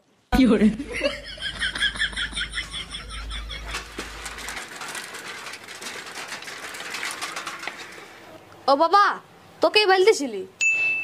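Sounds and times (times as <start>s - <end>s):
bicycle ticking: 3.6s - 8.3s.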